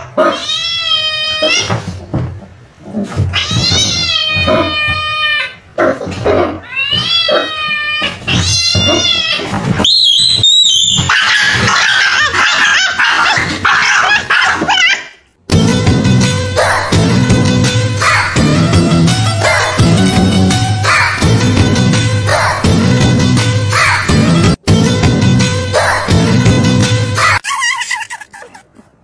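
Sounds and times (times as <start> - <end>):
cat yowling: 0.0 - 1.8, 3.3 - 5.6, 6.6 - 9.6.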